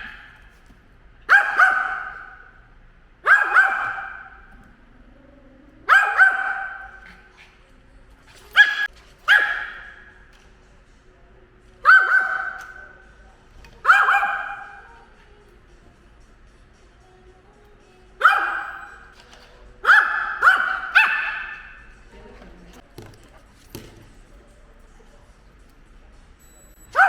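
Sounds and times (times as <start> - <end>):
dog barking: 0.0 - 0.5, 1.2 - 2.6, 3.2 - 4.5, 5.8 - 7.6, 8.4 - 10.3, 11.8 - 13.0, 13.8 - 15.1, 18.2 - 19.2, 19.8 - 21.9.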